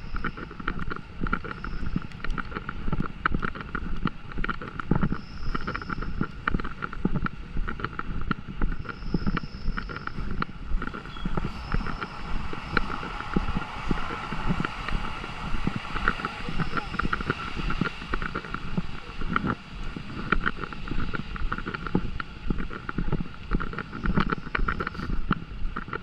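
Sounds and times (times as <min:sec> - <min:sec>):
wind rumbling on microphone: 0:00.0 - 0:26.0
small taps and clicks: 0:00.2 - 0:11.0.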